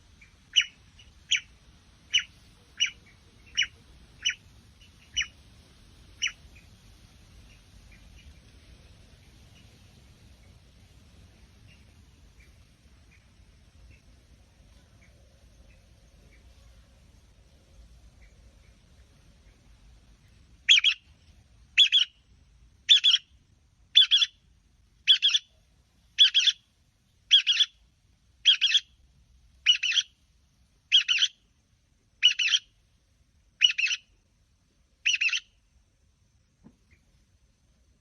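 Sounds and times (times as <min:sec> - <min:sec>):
short chirped bird call: 0:20.7 - 0:21.0, 0:27.3 - 0:27.7, 0:29.7 - 0:30.1, 0:32.2 - 0:32.6, 0:33.6 - 0:34.1, 0:35.0 - 0:35.5.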